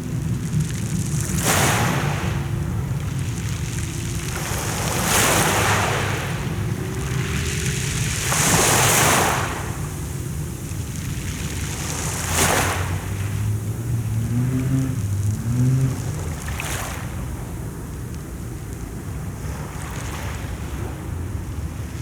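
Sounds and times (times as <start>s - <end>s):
sea waves washing onto shore: 0.0s - 22.0s
steady low rumble: 9.8s - 18.8s.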